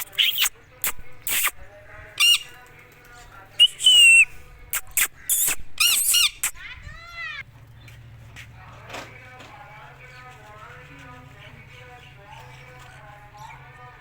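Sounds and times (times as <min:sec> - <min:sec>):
parrot screeching squawks: 0:00.0 - 0:01.6, 0:02.2 - 0:02.5, 0:04.8 - 0:07.4.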